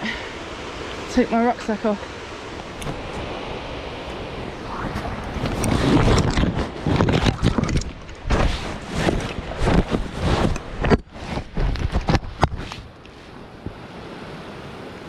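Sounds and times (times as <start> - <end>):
wind buffeting microphone: 0.0 - 14.1
handling rustles and knocks: 5.0 - 13.8.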